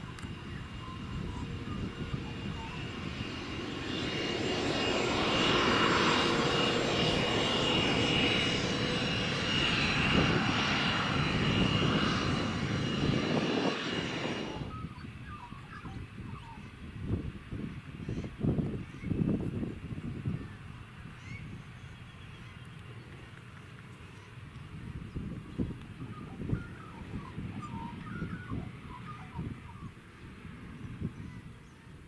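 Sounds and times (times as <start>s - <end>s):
jet engines roaring: 0.0s - 21.8s.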